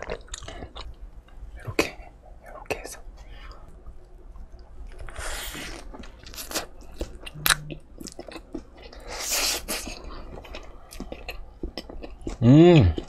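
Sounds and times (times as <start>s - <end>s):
person biting and chewing: 4.9s - 13.0s
wet mouth clicks: 7.3s - 8.3s.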